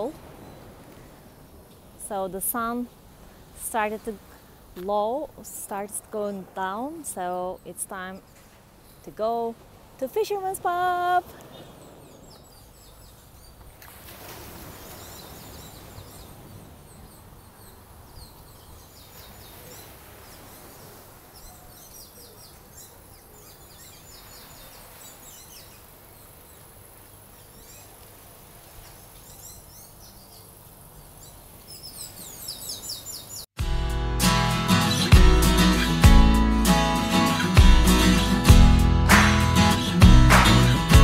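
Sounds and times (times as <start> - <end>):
sea: 0.0 - 33.4
wind: 0.0 - 41.0
birds chirping: 5.0 - 13.9, 14.6 - 28.0, 28.7 - 33.5.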